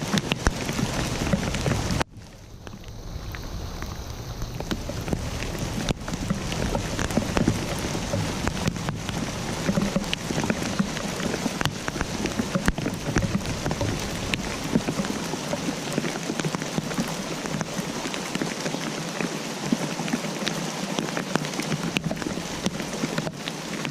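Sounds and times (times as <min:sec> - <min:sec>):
low rumble: 0:00.0 - 0:15.9
raindrops tapping on surface: 0:00.0 - 0:23.9
steady rain hiss: 0:00.0 - 0:23.9.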